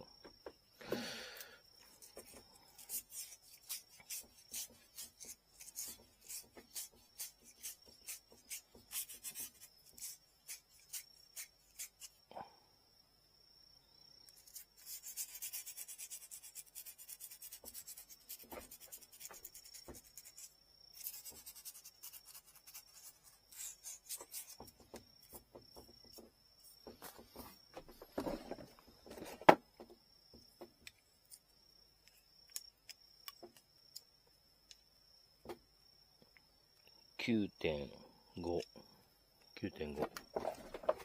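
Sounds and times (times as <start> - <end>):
hand sanding bamboo rod: 2.0 - 12.2, 14.6 - 25.4
clicks and knocks of handling: 39.9 - 41.0.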